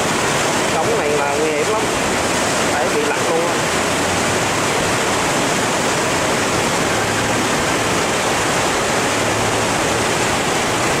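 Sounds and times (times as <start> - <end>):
water roaring through sluice gates: 0.0 - 11.0.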